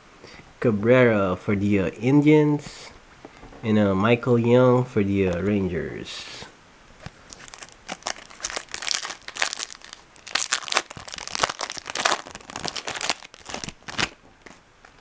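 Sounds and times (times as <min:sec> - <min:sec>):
foil wrapper crinkling and tearing: 0:07.0 - 0:15.0.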